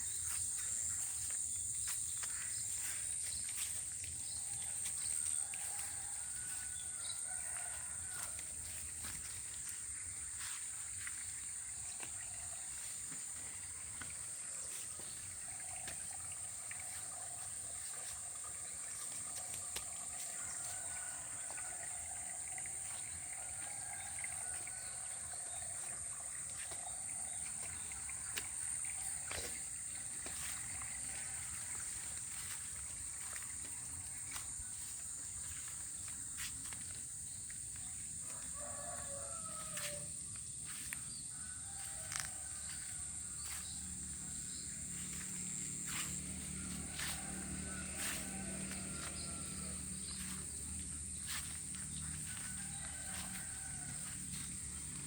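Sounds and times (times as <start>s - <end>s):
water wash: 0.0s - 55.0s
high-pitched insect drone: 39.8s - 55.0s.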